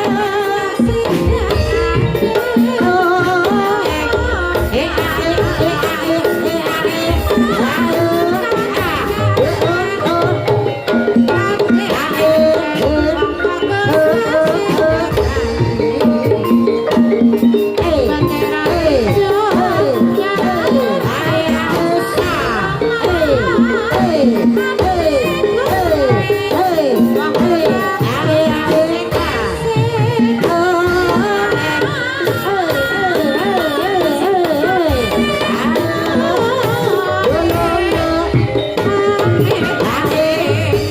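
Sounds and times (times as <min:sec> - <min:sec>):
sustained metallophone tones: 0:09.3 - 0:27.8.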